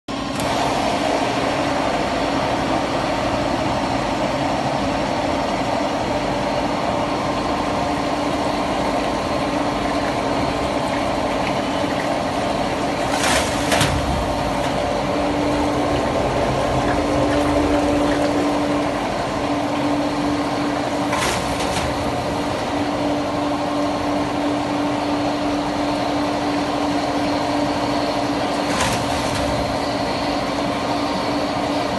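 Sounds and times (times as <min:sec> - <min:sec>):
machinery humming: 0:00.1 - 0:31.9.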